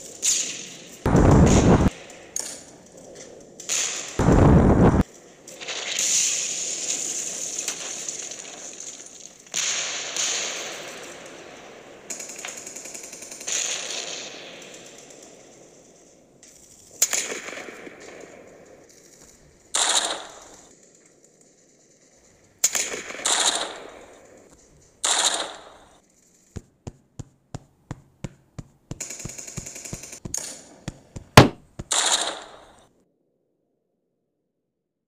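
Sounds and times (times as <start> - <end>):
machine-gun fire: 1.1 - 1.9, 31.0 - 32.7
rifle shots: 25.0 - 25.8, 31.3 - 32.7
loud gunshot crack: 31.4 - 32.7.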